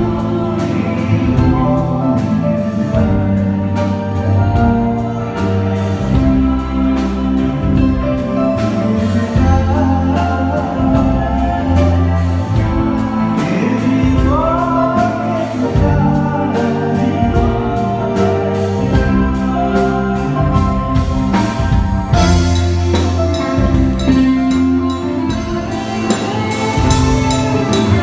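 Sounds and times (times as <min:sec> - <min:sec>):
bass notes: 0:00.0 - 0:28.0
live band playing: 0:00.0 - 0:28.0
person singing: 0:00.0 - 0:28.0
drum hits: 0:20.4 - 0:28.0.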